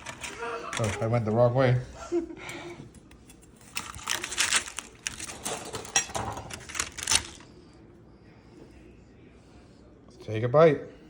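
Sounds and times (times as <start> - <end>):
objects being handled: 0.0 - 1.2, 2.9 - 7.5.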